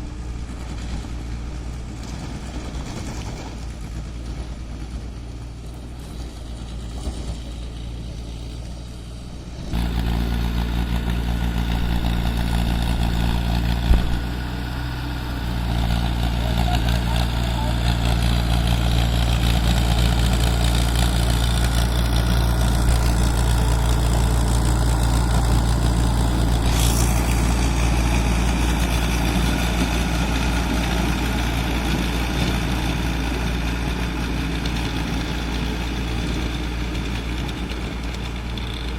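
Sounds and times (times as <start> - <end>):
tractor diesel engine running: 0.0 - 38.9
sharp thump: 13.8 - 14.2.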